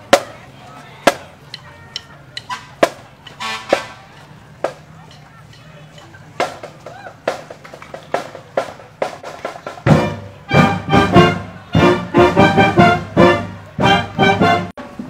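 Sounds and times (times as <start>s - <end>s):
marching drum line beating: 1.0s - 14.7s
horns playing loud chords: 1.7s - 4.0s, 9.9s - 14.8s.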